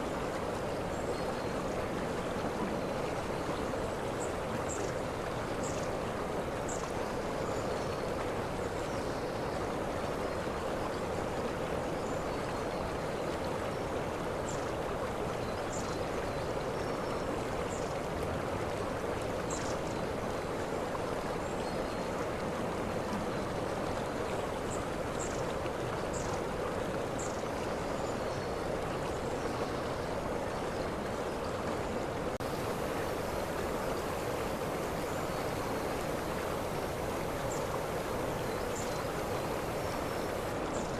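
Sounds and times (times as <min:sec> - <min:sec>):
waterfall rushing: 0:32.4 - 0:40.6.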